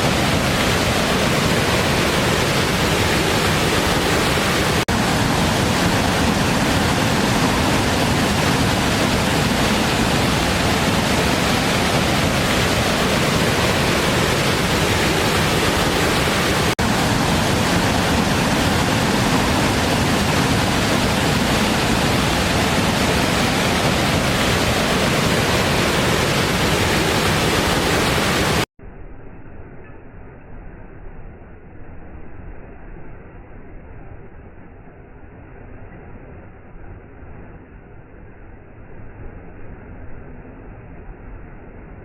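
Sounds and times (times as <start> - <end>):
waterfall rushing: 0.0 - 28.7.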